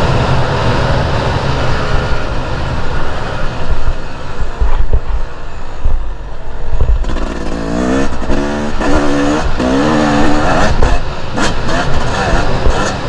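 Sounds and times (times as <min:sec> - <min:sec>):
wind rumble on microphone: 0:00.0 - 0:13.0
dirt bike engine revving: 0:06.9 - 0:13.0.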